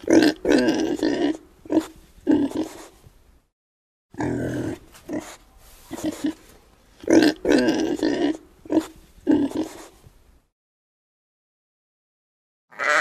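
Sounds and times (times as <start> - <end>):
wild boar grunting: 0.0 - 3.0, 4.2 - 6.4, 7.0 - 10.0.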